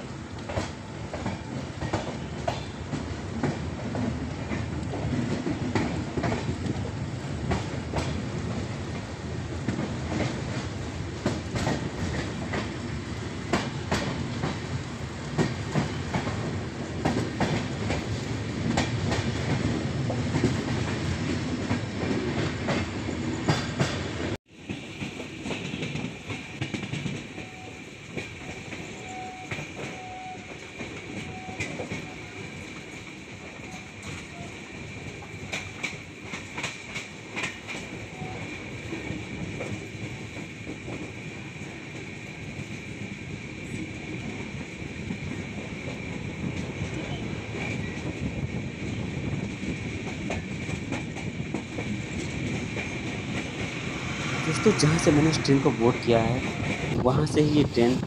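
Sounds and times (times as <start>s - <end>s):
train rumbling at speed: 0.0s - 58.0s
wheels clicking over rail joints: 23.5s - 57.0s.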